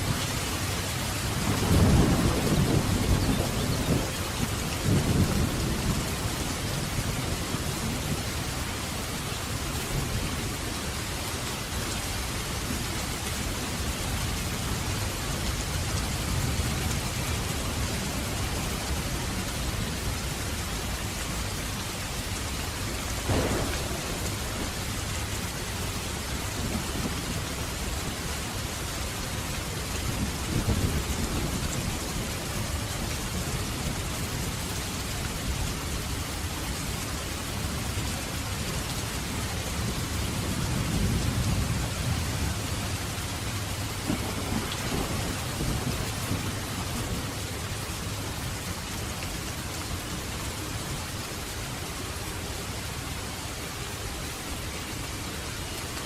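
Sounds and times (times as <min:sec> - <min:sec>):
heavy rain: 0:00.0 - 0:56.0
thunder rumbling and cracking: 0:01.2 - 0:08.2, 0:23.2 - 0:28.1, 0:43.4 - 0:48.5.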